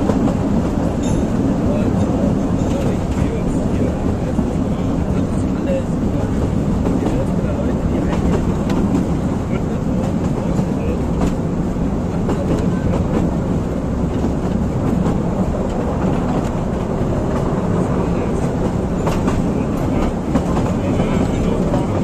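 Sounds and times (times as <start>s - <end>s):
train wheels rumbling on rails: 0.0s - 22.0s
sharp track clicks: 18.4s - 22.0s.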